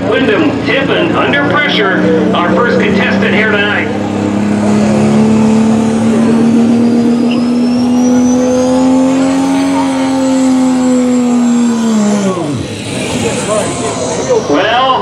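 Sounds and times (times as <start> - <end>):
diesel truck engine at high revs: 0.0 - 15.0
turbo whistle: 7.2 - 10.2.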